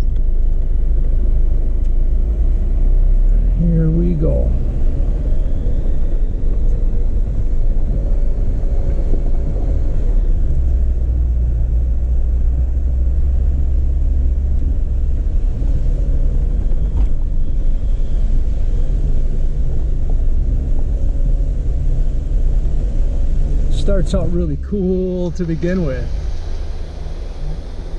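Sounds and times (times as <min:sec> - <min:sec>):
vehicle engine and tyres rumbling: 0:00.0 - 0:27.9.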